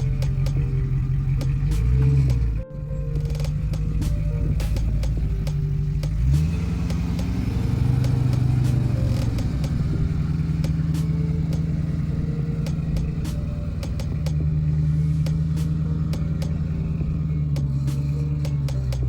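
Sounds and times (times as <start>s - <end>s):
engine running under load: 0.0s - 19.0s
sharp clicks and knocks: 3.2s - 7.4s.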